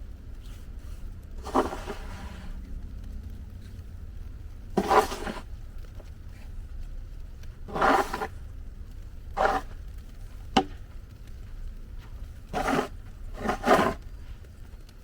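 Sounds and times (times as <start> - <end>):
low steady rumble: 0.0 - 15.0
short scraping noises: 0.4 - 2.6, 4.8 - 5.5, 7.7 - 8.4, 9.4 - 9.8, 12.5 - 14.1.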